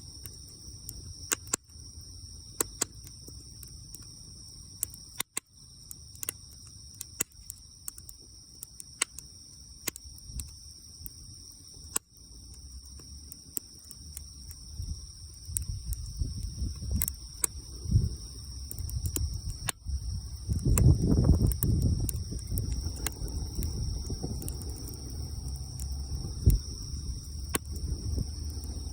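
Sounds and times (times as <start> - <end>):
campfire crackling and popping: 0.0 - 28.9
high-pitched insect chorus: 0.0 - 28.9
low rumble: 21.0 - 28.9.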